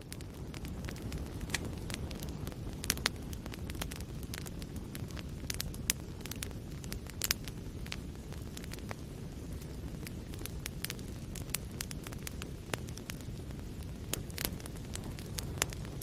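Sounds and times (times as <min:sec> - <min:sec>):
fire burning in fireplace: 0:00.0 - 0:16.0
logs crackling and popping: 0:00.0 - 0:16.0.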